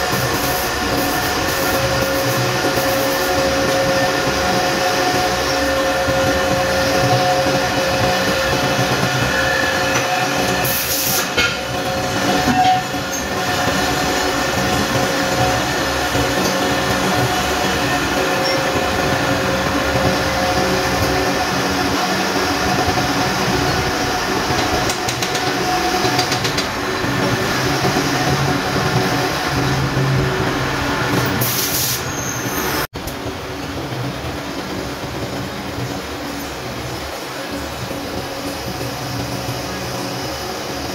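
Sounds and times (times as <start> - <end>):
metal lathe running: 0.0 - 31.5
brief high hiss: 31.4 - 32.2.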